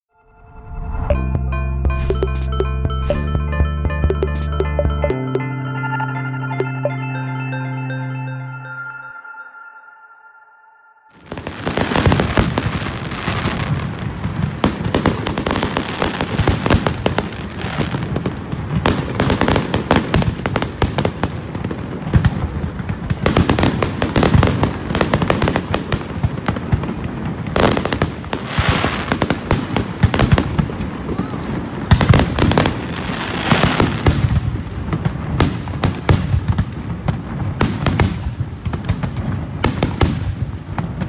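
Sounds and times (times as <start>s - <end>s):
fireworks bursting and crackling: 11.1s - 41.0s.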